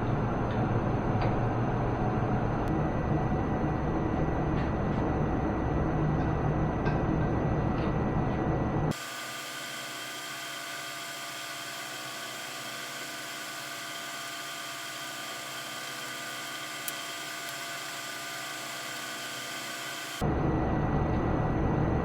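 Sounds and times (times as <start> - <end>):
hiss: 8.9 - 20.2
high mechanical whine: 8.9 - 22.0.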